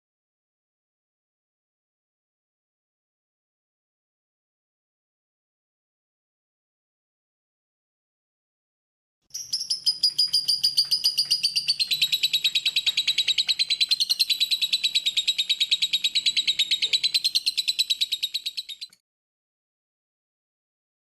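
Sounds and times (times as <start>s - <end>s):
lovebird chirping: 9.3s - 19.0s.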